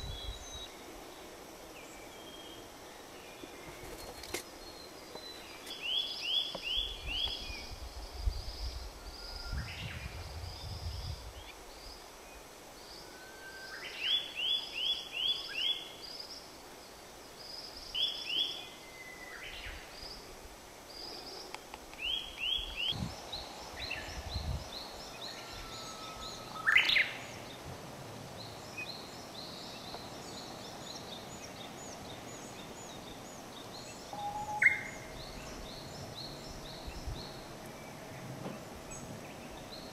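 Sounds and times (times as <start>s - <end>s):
flycatcher singing: 20.9s - 27.7s, 28.3s - 39.9s.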